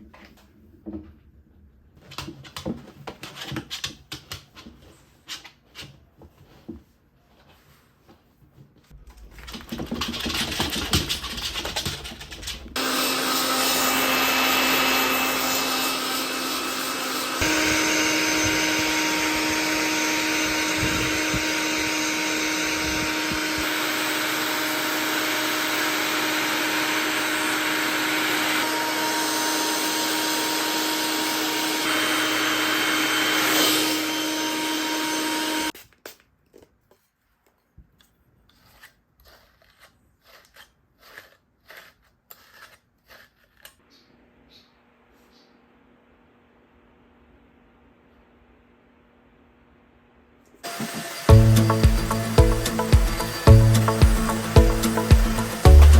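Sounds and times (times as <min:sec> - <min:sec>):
appliance motor whining: 0:12.8 - 0:35.7, 0:50.6 - 0:55.9.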